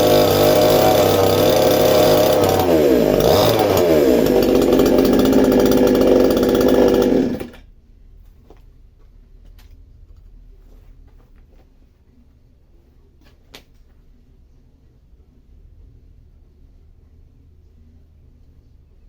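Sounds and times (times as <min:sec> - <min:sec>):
chainsaw engine running: 0:00.0 - 0:07.6.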